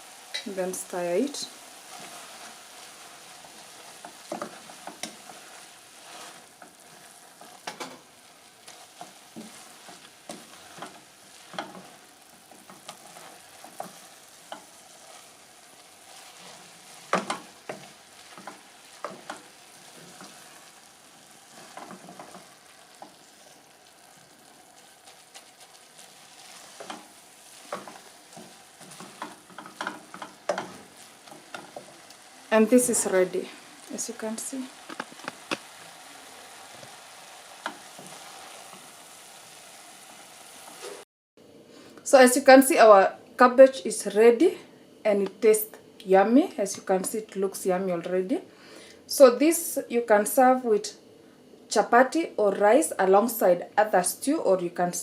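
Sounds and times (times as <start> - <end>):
cabbage sizzling in a pan: 0.0 - 41.0
utensil knocking and scraping pan: 17.1 - 19.4, 27.7 - 31.9.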